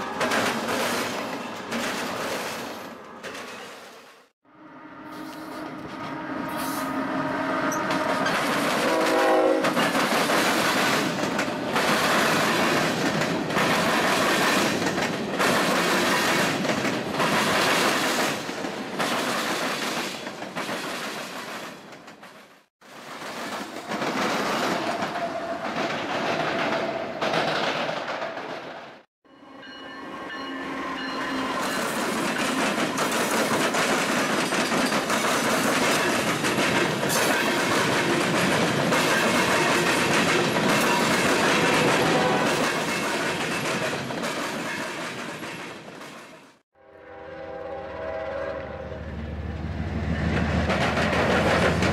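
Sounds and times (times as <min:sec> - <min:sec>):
freight cars clattering on rails: 0:00.0 - 0:04.2, 0:07.7 - 0:29.0, 0:31.6 - 0:46.6, 0:50.2 - 0:51.9
locomotive horn: 0:04.4 - 0:09.9, 0:41.5 - 0:42.7, 0:46.8 - 0:49.6
locomotive passing: 0:47.1 - 0:51.9.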